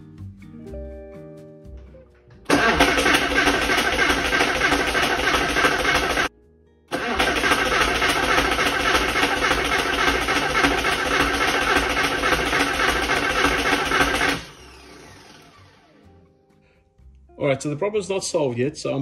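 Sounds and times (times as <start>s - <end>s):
engine cranking without firing: 2.5s - 6.3s, 6.9s - 15.9s.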